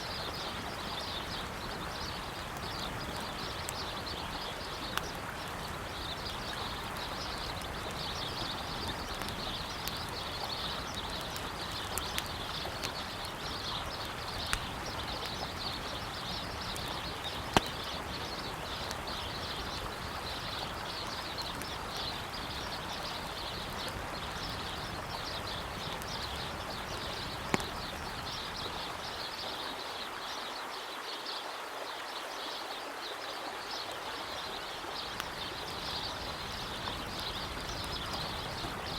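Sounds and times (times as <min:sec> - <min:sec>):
campfire crackling: 0:00.0 - 0:30.2, 0:33.9 - 0:38.9
birds chirping: 0:00.0 - 0:31.2, 0:32.4 - 0:38.9
river flowing: 0:00.0 - 0:38.9
sharp wood pops: 0:17.5 - 0:17.8.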